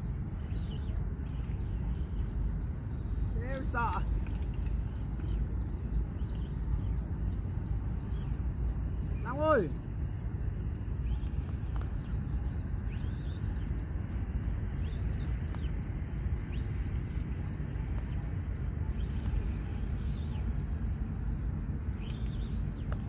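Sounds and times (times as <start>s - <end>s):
small birds chirping: 0.0s - 23.0s
steady low rumble: 0.0s - 23.0s.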